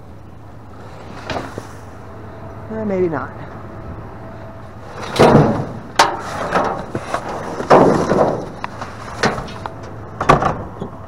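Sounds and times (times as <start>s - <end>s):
wooden knocks and bangs in dumpster: 4.9s - 10.9s.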